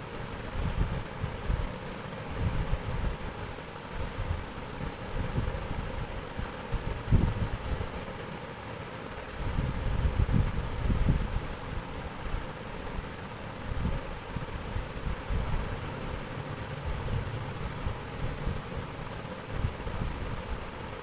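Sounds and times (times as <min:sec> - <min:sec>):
wind buffeting microphone: 0:04.0 - 0:08.0, 0:09.4 - 0:20.9.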